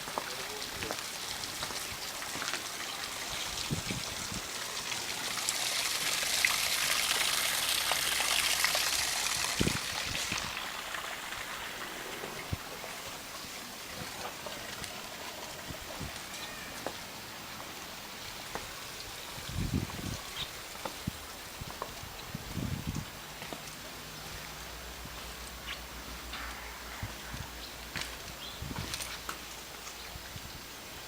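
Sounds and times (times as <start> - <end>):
rushing hiss: 0.0 - 21.8.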